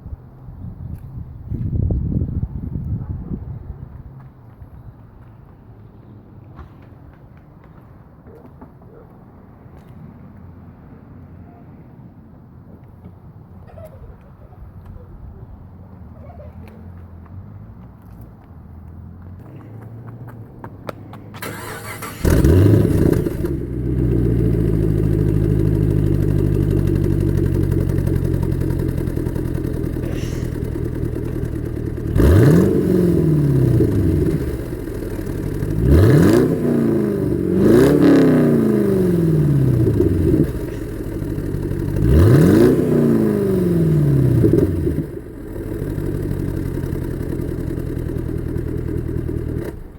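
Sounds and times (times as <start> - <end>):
car engine idling and revving: 15.4 - 49.9.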